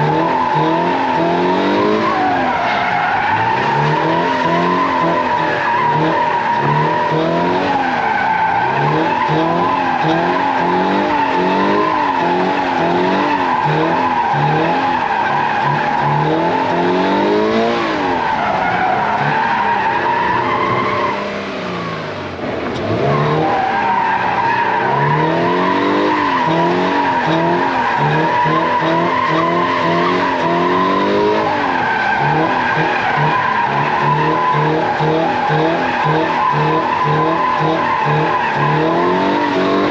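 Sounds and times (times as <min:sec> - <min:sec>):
car engine revving: 0:00.0 - 0:39.9
tyres squealing: 0:22.8 - 0:39.9.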